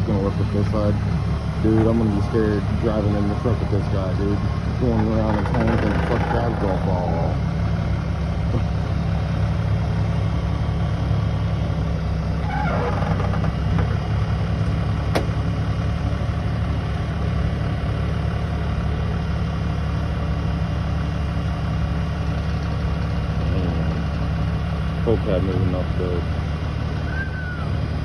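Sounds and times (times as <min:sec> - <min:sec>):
engine idling: 0:00.0 - 0:28.0
brief falling squeal: 0:27.0 - 0:27.8.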